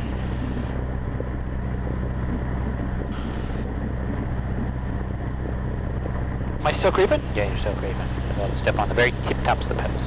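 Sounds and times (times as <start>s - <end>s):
aircraft piston engine running: 6.6s - 10.0s.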